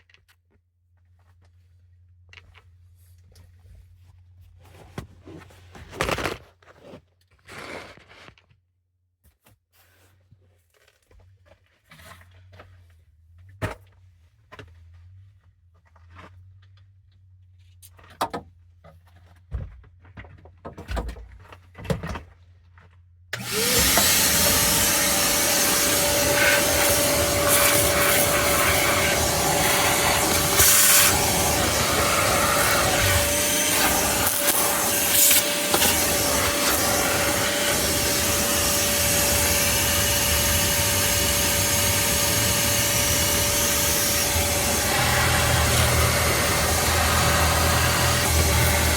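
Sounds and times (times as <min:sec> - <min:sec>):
vacuum cleaner running: 0:23.4 - 0:48.9.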